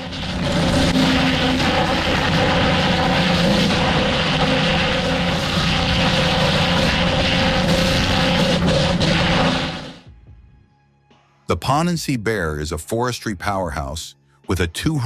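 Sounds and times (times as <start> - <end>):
machine clattering and knocks: 0.0 - 10.0
heavy machine engine drone: 0.0 - 10.1.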